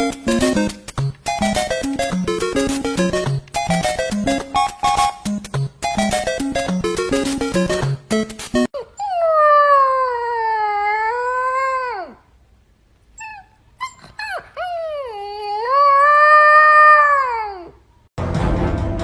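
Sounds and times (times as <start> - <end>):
dog yipping: 13.2 - 16.2.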